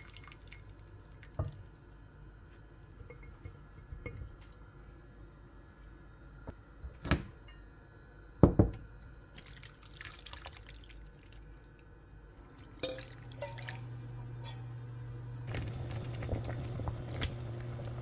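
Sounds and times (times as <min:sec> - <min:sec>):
water dripping or running: 0:00.0 - 0:02.2, 0:09.4 - 0:18.0
steady low hum: 0:12.3 - 0:18.0.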